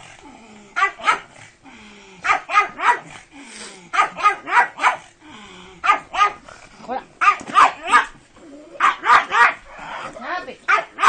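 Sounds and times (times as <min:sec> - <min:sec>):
dog barking: 0:00.8 - 0:01.3, 0:02.2 - 0:03.1, 0:03.9 - 0:05.1, 0:05.8 - 0:06.4, 0:07.2 - 0:08.2, 0:08.8 - 0:09.6, 0:10.7 - 0:11.0.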